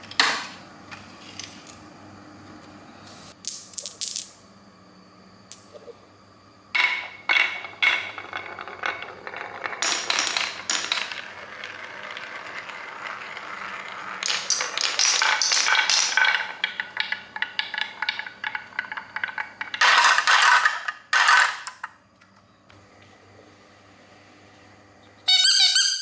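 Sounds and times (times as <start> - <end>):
toy pieces clicking together: 8.8 - 21.9.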